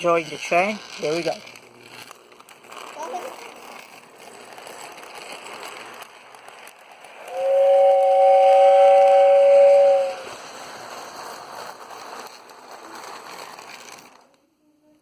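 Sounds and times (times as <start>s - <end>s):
toy train rumbling on track: 0.0s - 15.0s
toy train two-note whistle: 7.3s - 10.3s.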